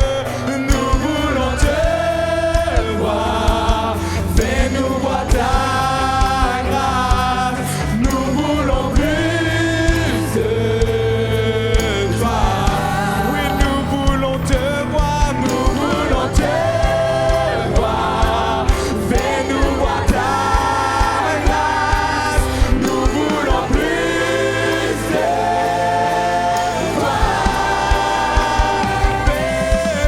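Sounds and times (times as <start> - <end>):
band with steady beat: 0.0 - 30.0
group of singers: 0.0 - 30.0.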